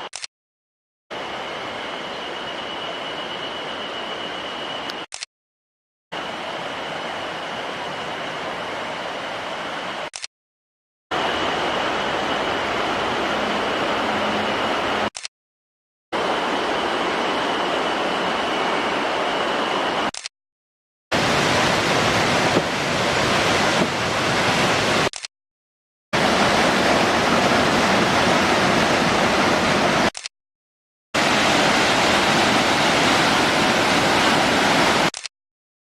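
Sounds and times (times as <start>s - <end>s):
mountain stream rushing: 11.1s - 15.1s, 21.1s - 25.1s, 26.2s - 30.1s, 31.2s - 35.1s.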